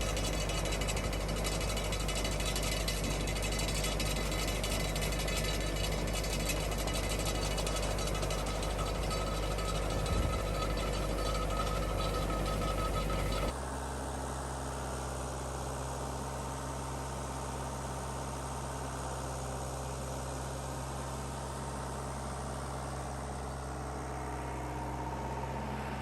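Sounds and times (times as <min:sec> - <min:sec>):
machinery clattering: 0:00.0 - 0:13.5
tractor engine humming: 0:00.0 - 0:13.6.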